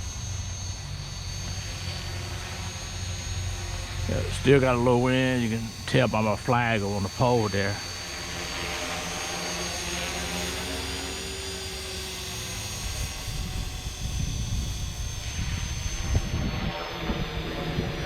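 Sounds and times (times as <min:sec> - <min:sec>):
model helicopter motor humming: 0:00.0 - 0:18.0
wind buffeting microphone: 0:13.0 - 0:18.0.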